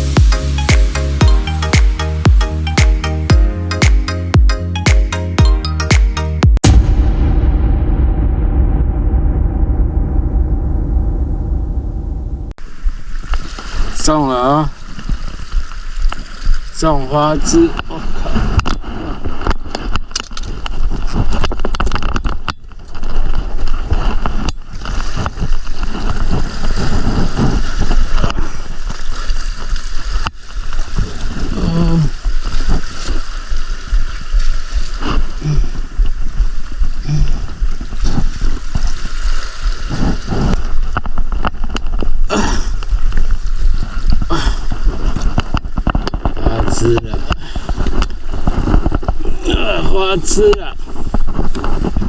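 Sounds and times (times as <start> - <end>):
steady low rumble: 6.6 - 13.1.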